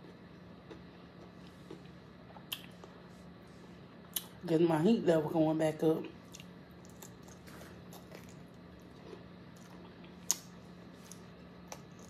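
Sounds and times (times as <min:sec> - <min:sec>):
steady low hum: 0:00.0 - 0:12.0
wet chewing and mouth clicks: 0:06.2 - 0:12.0.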